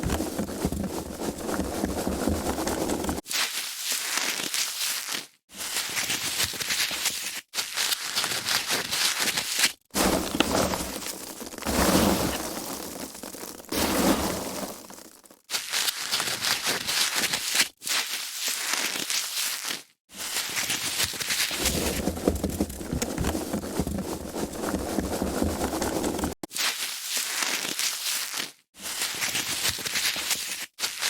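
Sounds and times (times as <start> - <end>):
foam packaging crackling: 0.0 - 3.2, 7.8 - 26.4.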